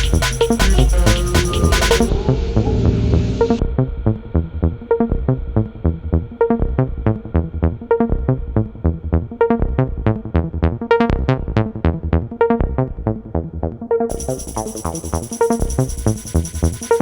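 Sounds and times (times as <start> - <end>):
electronic dance music: 0.0 - 3.6.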